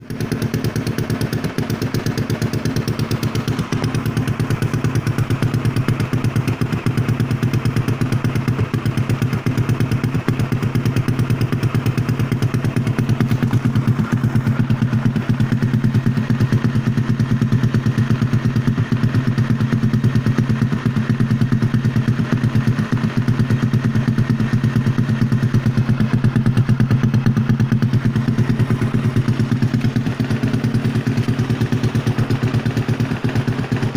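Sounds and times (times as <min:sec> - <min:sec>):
scooter engine idling: 0:00.0 - 0:33.9.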